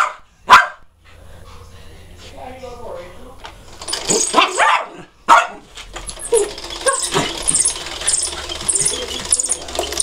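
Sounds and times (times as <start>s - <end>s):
dog barking and yelping: 0.0s - 0.8s, 4.1s - 9.8s
vacuum cleaner humming: 6.1s - 10.0s.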